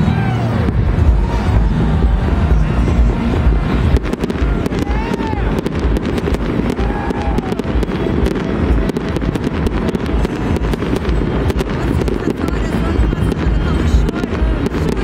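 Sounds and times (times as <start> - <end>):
fireworks booming and crackling: 0.0 - 15.0.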